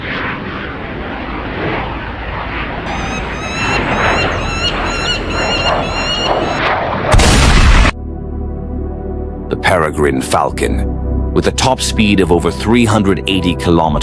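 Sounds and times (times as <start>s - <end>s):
constant rushing noise: 0.0s - 7.2s
birds calling sharp notes: 1.3s - 6.6s.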